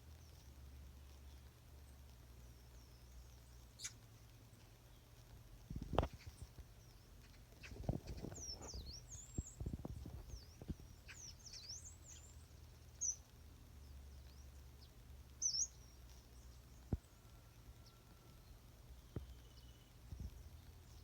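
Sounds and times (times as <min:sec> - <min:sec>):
birds chirping: 0:00.1 - 0:21.0.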